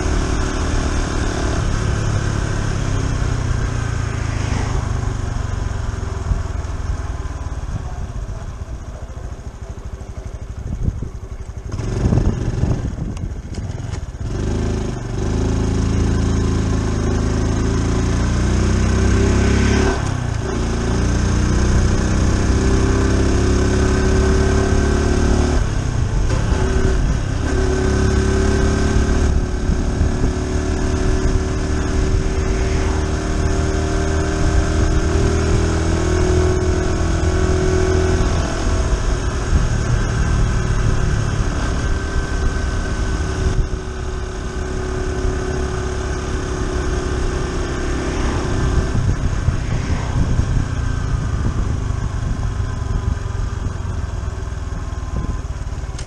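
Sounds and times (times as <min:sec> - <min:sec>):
motorcycle engine while riding: 0:00.0 - 0:56.0
wind noise: 0:10.4 - 0:17.4, 0:19.0 - 0:56.0.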